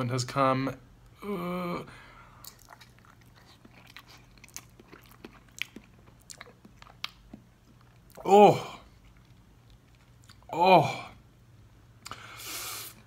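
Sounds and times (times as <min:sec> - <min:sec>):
person chewing with crunches: 0:02.3 - 0:10.5.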